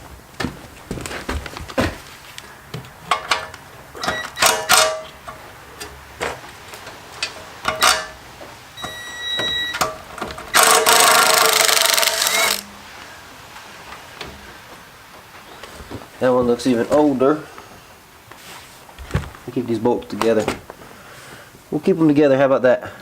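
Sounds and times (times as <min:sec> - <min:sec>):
tools clicking on bolts: 0:03.1 - 0:06.0, 0:09.8 - 0:12.7
bolt spinning out rapidly: 0:10.6 - 0:12.7.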